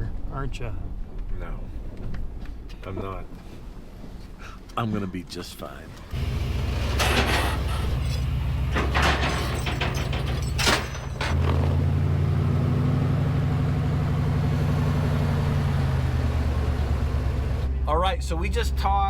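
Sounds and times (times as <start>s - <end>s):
truck engine running: 5.9s - 17.8s
short knocks or rattles: 6.2s - 11.9s.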